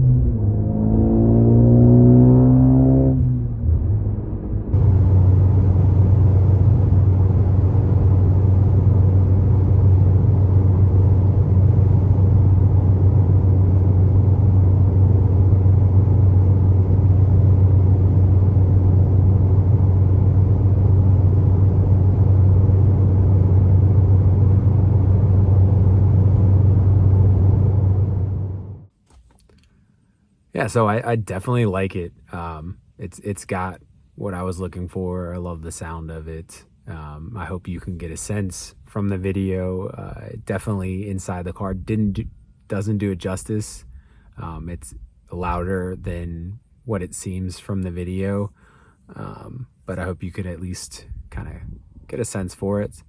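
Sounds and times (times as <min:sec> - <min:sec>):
car exhaust droning: 0:00.0 - 0:28.9.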